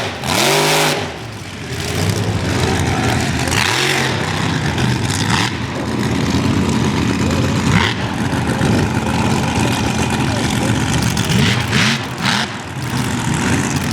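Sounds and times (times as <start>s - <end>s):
truck engine revving: 0.0s - 13.9s.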